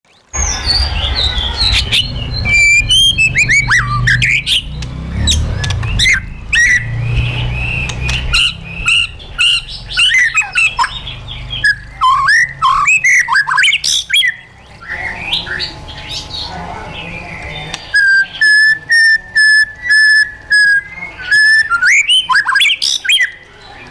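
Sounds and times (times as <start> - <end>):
low rumble: 0.4 - 11.8
bird singing whistled notes: 0.4 - 16.1, 17.2 - 23.4
sharp clicks: 2.5 - 11.0.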